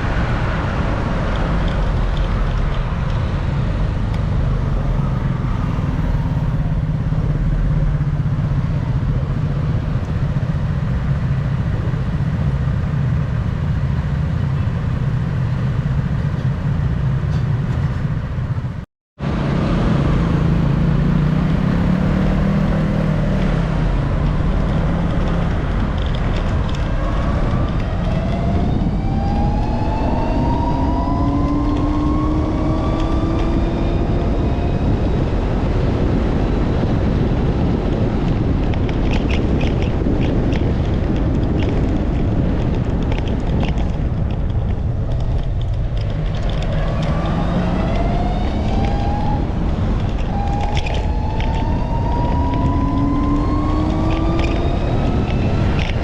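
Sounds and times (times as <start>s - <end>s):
engine and road noise: 0.0s - 56.0s
wind rushing over microphone: 0.0s - 56.0s
engine revving up: 19.2s - 25.9s, 26.5s - 35.7s, 46.6s - 56.0s.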